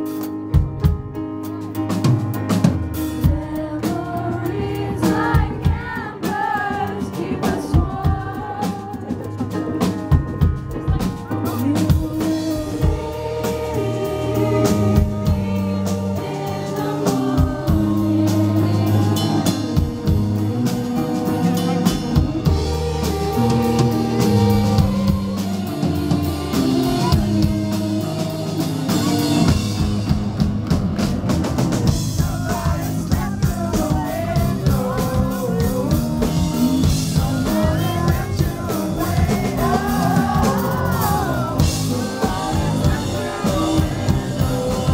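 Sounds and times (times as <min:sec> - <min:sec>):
live rock band playing: 0:00.0 - 0:44.9
person singing: 0:10.8 - 0:29.8, 0:32.0 - 0:44.9.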